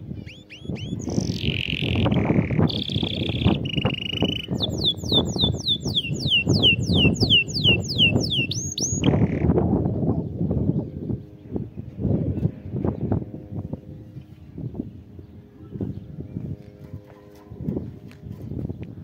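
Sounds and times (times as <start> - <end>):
canary singing: 0.0 - 9.6.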